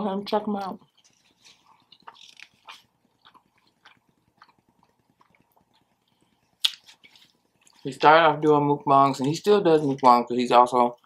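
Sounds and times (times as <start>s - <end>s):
person chewing: 0.6s - 8.0s
mouth clicks and smacks: 0.8s - 7.8s.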